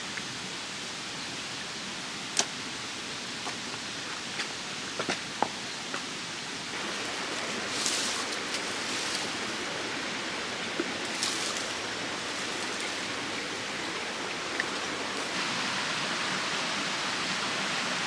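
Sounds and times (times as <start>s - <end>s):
stream water flowing: 6.6s - 18.0s
water swishes: 6.7s - 15.6s.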